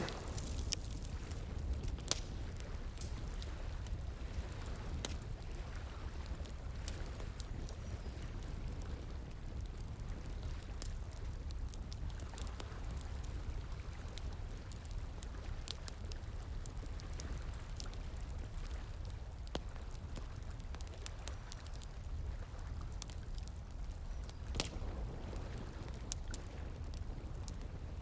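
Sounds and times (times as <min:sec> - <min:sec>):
flowing water: 0:00.0 - 0:01.4
wood fire crackling: 0:00.0 - 0:28.0.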